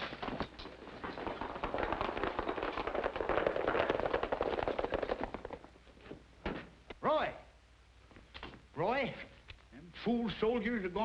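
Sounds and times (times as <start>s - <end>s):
horses galloping hoofbeats: 0.0s - 6.1s.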